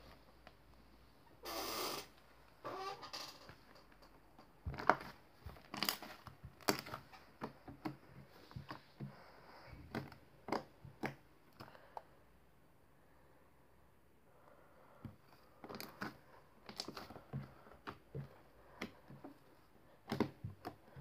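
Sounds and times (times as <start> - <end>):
slime popping and crackling: 4.7 - 8.0, 15.6 - 18.1.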